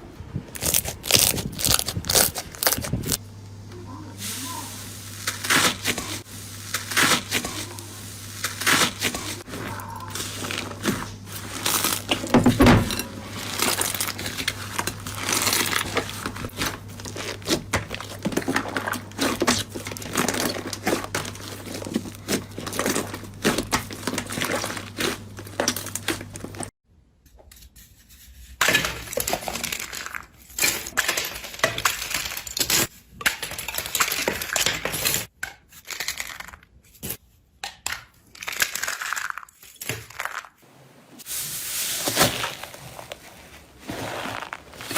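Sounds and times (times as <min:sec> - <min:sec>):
slime squeezed by hand crackling: 0:00.6 - 0:03.2.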